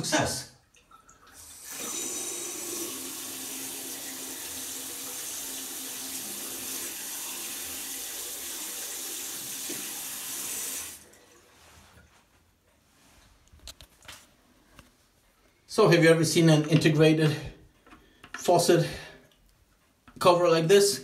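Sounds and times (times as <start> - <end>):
faucet water running into basin: 0.6 - 11.6.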